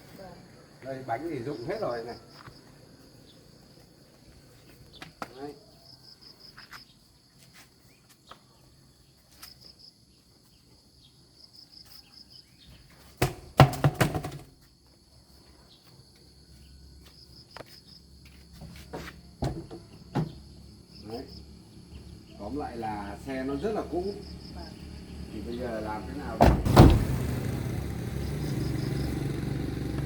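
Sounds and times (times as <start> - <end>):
insects chirring: 0.0 - 13.2, 13.8 - 29.9
clatter of knocks: 13.2 - 14.5.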